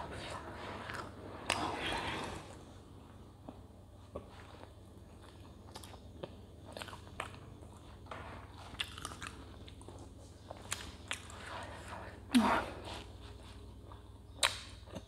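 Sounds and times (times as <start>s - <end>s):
person chewing: 3.5s - 12.0s.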